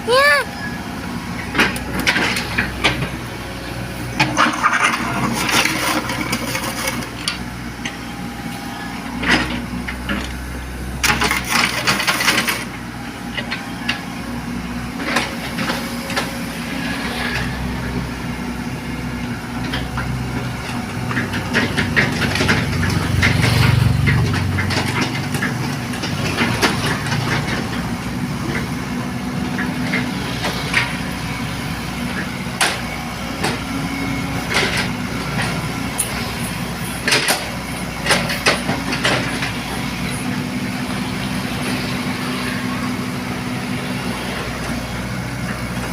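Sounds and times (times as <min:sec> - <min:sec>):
excavator diesel engine running: 0:00.0 - 0:45.9
clattering and scraping of sand: 0:04.1 - 0:07.4.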